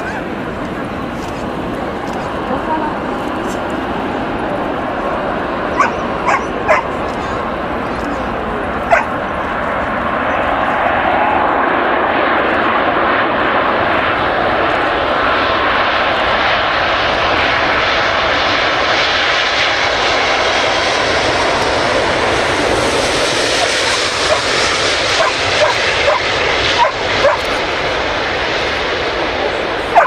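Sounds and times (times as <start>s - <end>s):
jet airliner passing low: 0.0s - 30.0s
dog yipping: 5.7s - 7.0s, 8.9s - 9.2s, 23.6s - 24.6s, 25.2s - 27.5s.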